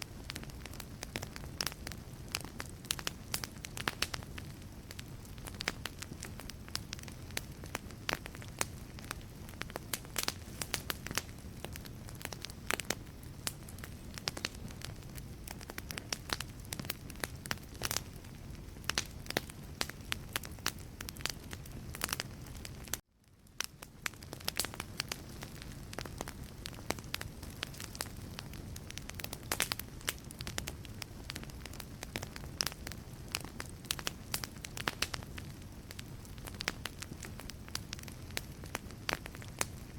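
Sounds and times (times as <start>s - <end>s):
logs crackling and popping: 0.0s - 39.9s
hiss of flame: 0.3s - 23.0s.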